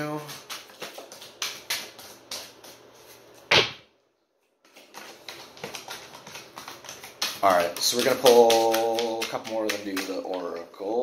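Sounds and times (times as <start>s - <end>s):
loud knock: 3.5s - 3.8s
cards being shuffled: 4.7s - 10.6s.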